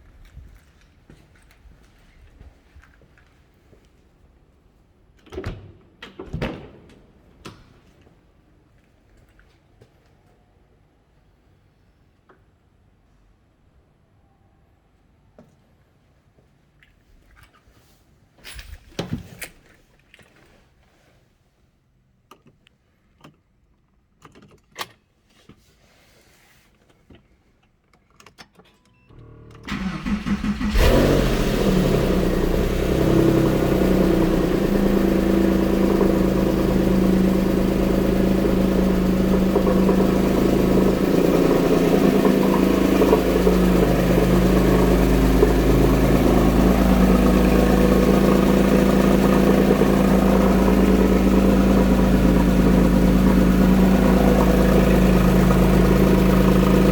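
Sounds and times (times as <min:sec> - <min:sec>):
car engine fast idle: 0:29.1 - 0:56.9
car starter cranking: 0:29.1 - 0:56.9.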